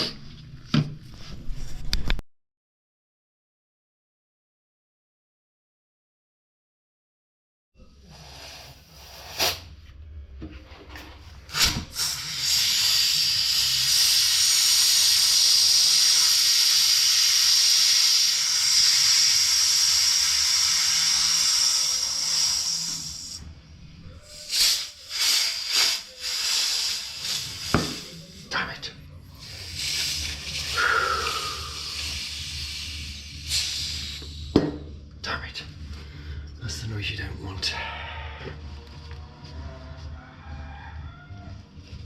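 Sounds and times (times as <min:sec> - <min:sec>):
air hissing through tyre valve: 0:08.1 - 0:09.7, 0:11.5 - 0:23.5, 0:24.2 - 0:28.7, 0:29.4 - 0:34.9.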